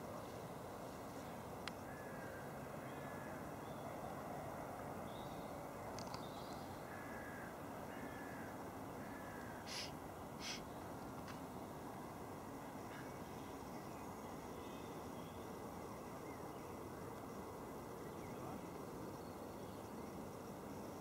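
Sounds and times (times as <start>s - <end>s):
steady background hiss: 0.0s - 21.0s
birds calling: 5.2s - 10.8s
harsh bird calls: 9.0s - 10.7s.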